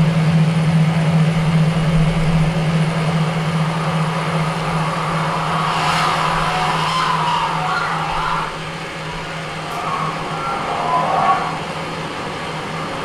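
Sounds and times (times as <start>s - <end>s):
steady low hum: 0.0s - 13.0s
dense noisy wash: 0.1s - 13.0s
wavering higher tone: 2.0s - 12.9s.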